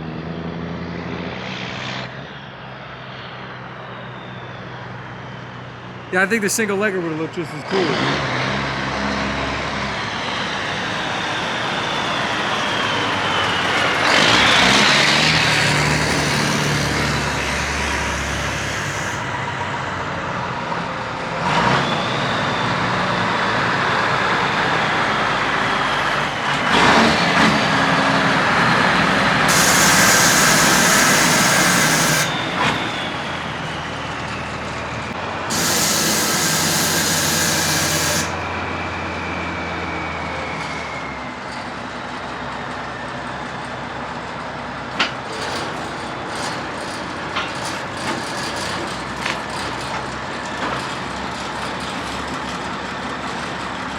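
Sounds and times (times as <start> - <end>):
diesel truck engine: 11.8 - 53.9
air hisses: 29.5 - 32.4, 35.5 - 38.4.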